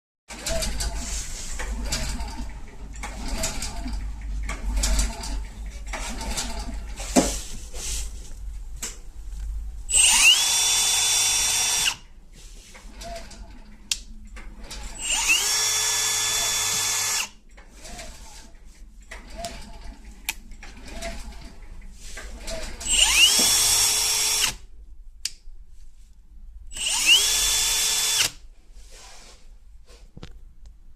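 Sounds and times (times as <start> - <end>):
cordless drill motor whine: 9.9 - 12.0, 15.0 - 17.4, 22.8 - 24.6, 26.7 - 28.4.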